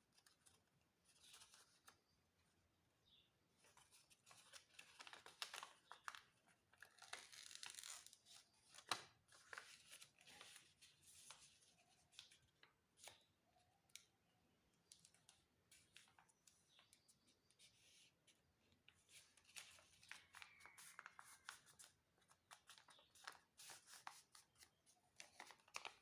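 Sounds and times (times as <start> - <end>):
paper rustling and crinkling: 3.6 - 13.3, 14.9 - 26.0
paper crackle: 3.7 - 13.2, 19.0 - 26.0.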